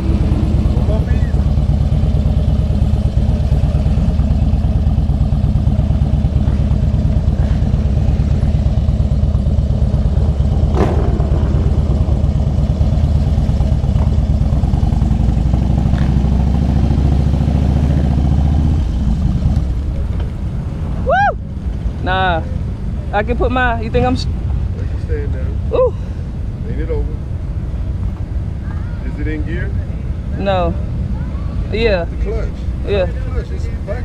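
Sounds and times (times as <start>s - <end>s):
motorcycle engine running low: 0.0s - 24.7s.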